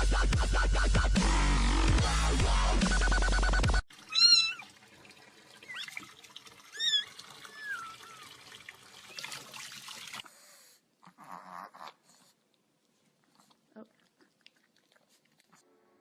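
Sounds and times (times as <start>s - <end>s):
dubstep music with heavy bass: 0.0s - 3.8s
cat meowing: 4.1s - 4.7s.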